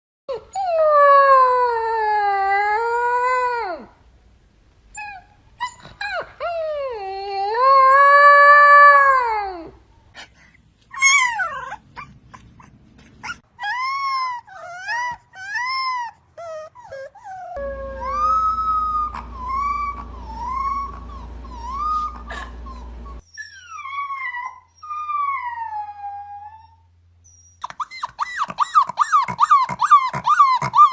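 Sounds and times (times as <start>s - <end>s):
puppies howling: 5.0s - 9.7s, 13.6s - 26.8s, 27.6s - 30.9s.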